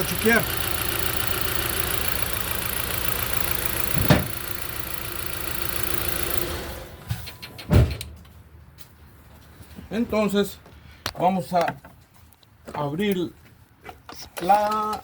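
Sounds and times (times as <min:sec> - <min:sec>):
car engine idling with misfire: 0:00.0 - 0:07.1
sharp thump: 0:04.0 - 0:04.4.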